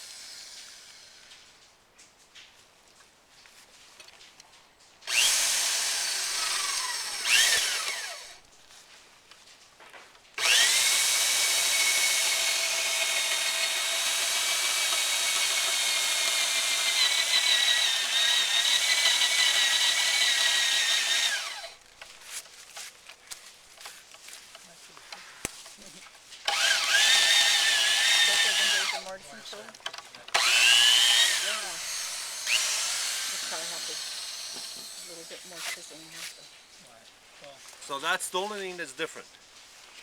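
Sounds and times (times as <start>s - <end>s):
electric drill boring into wood: 0.0s - 1.2s, 5.1s - 8.4s, 10.4s - 21.8s, 26.5s - 36.5s.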